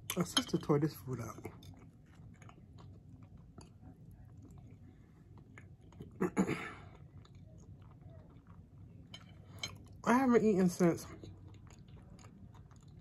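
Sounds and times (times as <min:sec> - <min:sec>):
person chewing: 0:01.4 - 0:10.0, 0:11.1 - 0:13.0.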